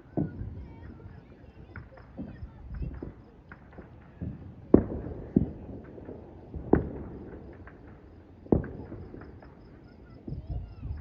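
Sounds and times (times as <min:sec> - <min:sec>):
faint firework pops: 0:00.0 - 0:11.0
fireworks sharp bangs: 0:00.0 - 0:11.0.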